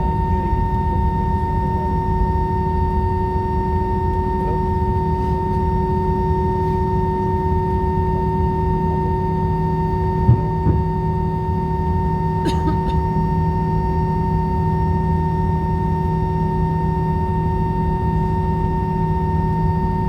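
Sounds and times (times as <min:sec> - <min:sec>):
jet engine high whine: 0:00.0 - 0:20.0
short knock: 0:10.3 - 0:10.8.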